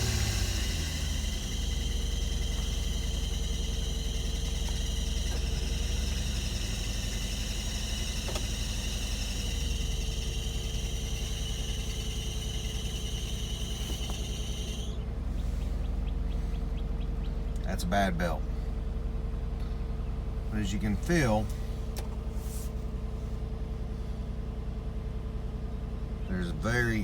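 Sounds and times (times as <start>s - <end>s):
high-pitched whine: 0.0s - 15.0s
car engine idling: 0.0s - 27.0s.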